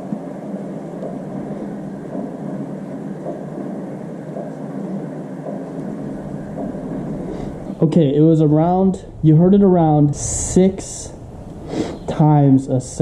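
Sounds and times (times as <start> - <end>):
repeating engine knock: 1.0 - 7.8.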